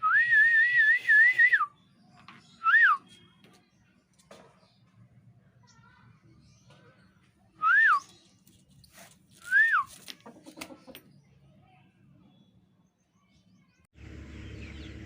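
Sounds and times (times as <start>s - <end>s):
short whistled notes: 0.0s - 1.8s, 9.4s - 10.0s.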